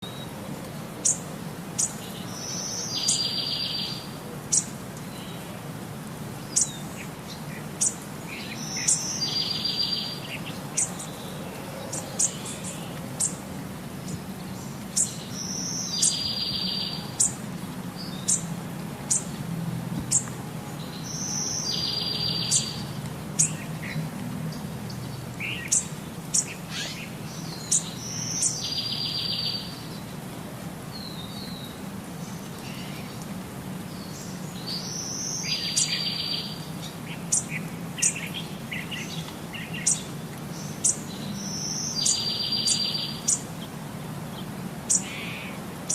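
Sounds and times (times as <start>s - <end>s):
birds chirping: 1.0s - 5.6s, 6.3s - 19.4s, 20.0s - 30.2s, 30.9s - 45.9s.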